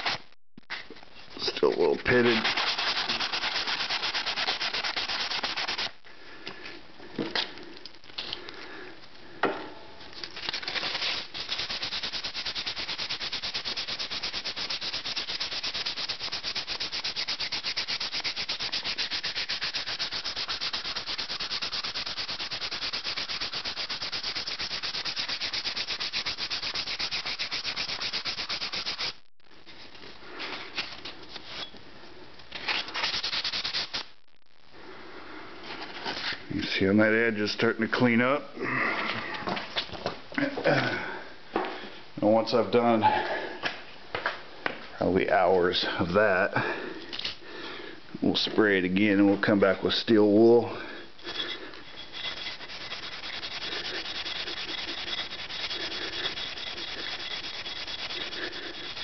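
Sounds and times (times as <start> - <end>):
sandpaper rubbing on metal: 1.8 - 5.9, 10.6 - 29.2, 32.7 - 34.1, 51.2 - 59.0.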